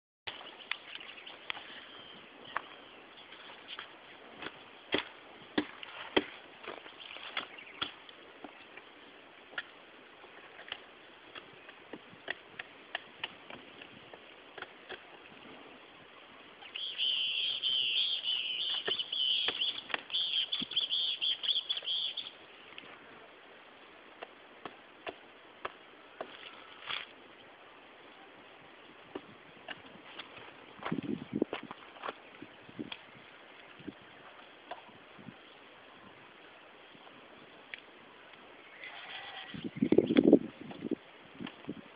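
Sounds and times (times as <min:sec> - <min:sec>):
bird chirping high notes: 0:16.6 - 0:22.4.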